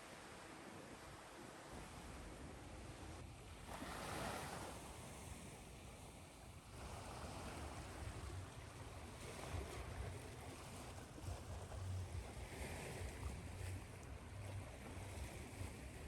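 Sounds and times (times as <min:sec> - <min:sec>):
ocean waves washing on shore: 0:03.6 - 0:16.0.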